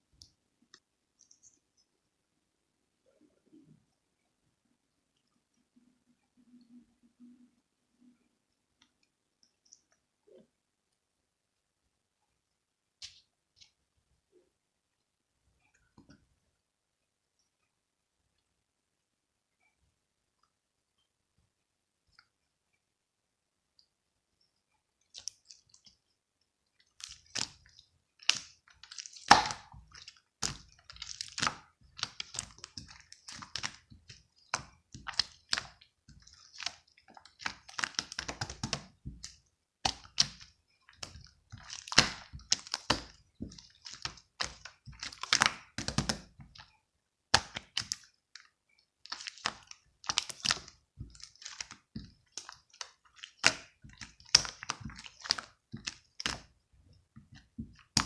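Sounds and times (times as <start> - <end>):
slime squished by hand: 26.9 - 46.7, 47.3 - 58.0.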